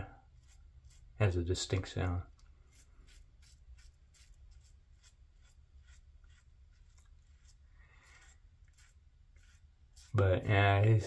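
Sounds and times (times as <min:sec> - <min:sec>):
razor scraping stubble: 0:00.0 - 0:11.0.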